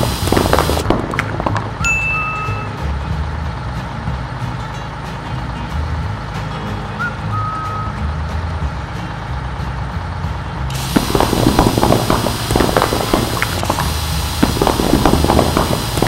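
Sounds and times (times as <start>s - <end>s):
drill crunching rock: 0.0s - 1.7s, 10.7s - 16.0s
cartoon truck engine rumble: 0.0s - 16.0s
short beep: 1.9s - 2.8s.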